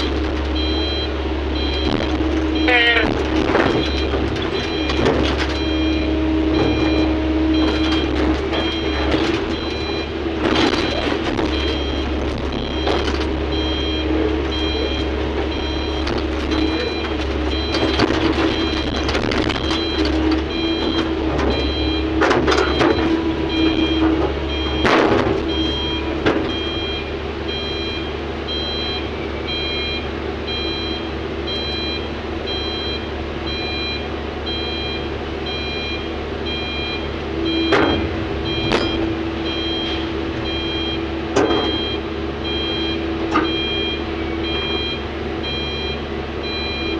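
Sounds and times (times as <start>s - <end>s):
diesel engine running: 0.0s - 46.9s
reversing alarm beeping: 0.0s - 46.9s
sharp knocks and clatters: 6.6s - 13.7s, 14.4s - 26.7s.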